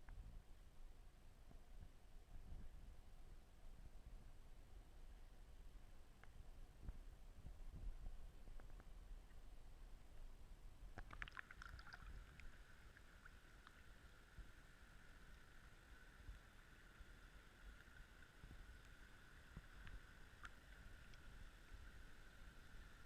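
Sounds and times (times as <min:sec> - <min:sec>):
thin steady whine: 0:11.6 - 0:23.0.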